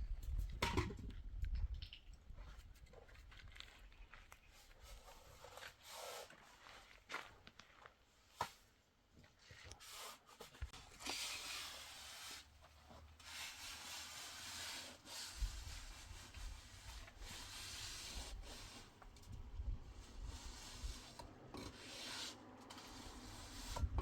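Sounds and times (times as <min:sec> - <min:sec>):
rubbing and scraping strokes: 0:04.5 - 0:07.0, 0:09.6 - 0:24.0.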